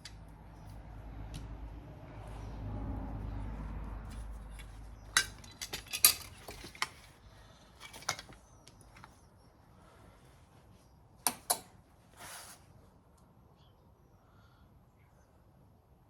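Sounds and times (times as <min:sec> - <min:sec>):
rumble of handling tools: 0:03.6 - 0:09.3
metallic clinks and knocks: 0:04.5 - 0:07.2, 0:07.8 - 0:08.4.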